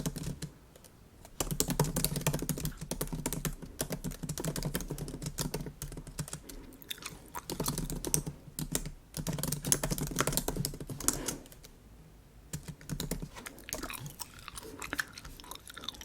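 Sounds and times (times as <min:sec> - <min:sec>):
gum chewing: 0:06.7 - 0:07.8, 0:13.4 - 0:16.0.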